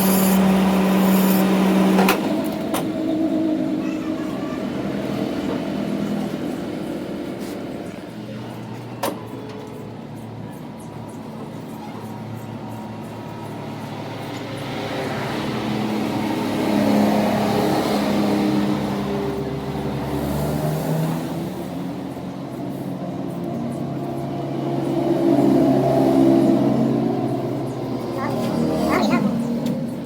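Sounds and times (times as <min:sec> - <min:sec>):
engine running: 0:00.0 - 0:11.2, 0:22.7 - 0:30.0.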